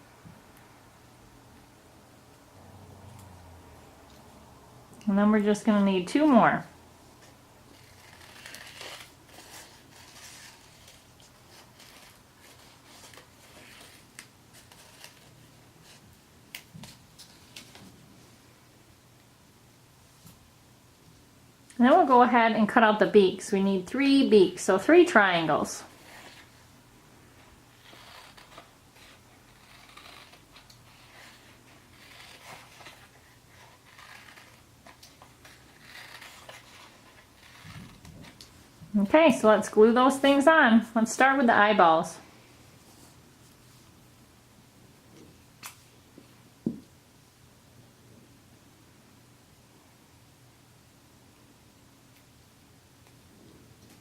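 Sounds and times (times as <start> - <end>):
scissors snipping paper: 7.7 - 15.3, 27.8 - 38.5
paper rustling: 7.7 - 16.0, 27.7 - 38.6.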